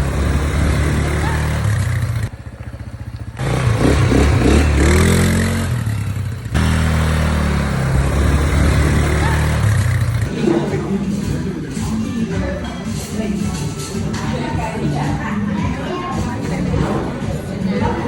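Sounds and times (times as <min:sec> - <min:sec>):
atv engine revving: 0:00.0 - 0:11.9.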